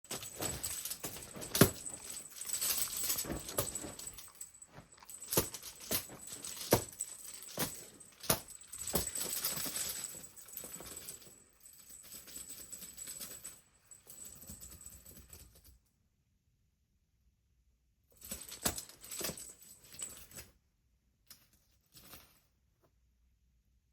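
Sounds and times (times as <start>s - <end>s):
cat toy rustling and jingling: 0.0s - 15.7s, 18.2s - 20.5s.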